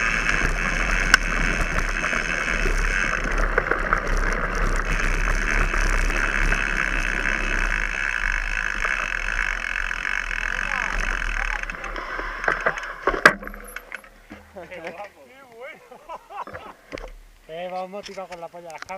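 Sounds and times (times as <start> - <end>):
mountain bike tyres on dirt: 0.0 - 15.9.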